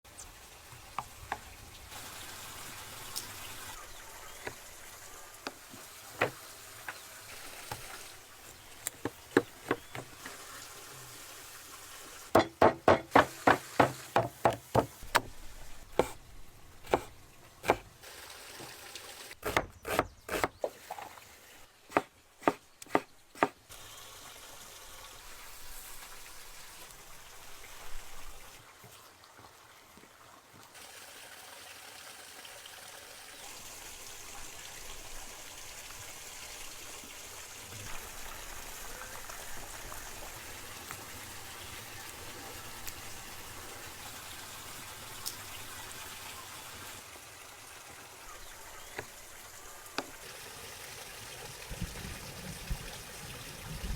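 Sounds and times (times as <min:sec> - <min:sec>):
knife chopping on cutting board: 0:12.4 - 0:15.3, 0:16.9 - 0:17.9, 0:21.9 - 0:23.5.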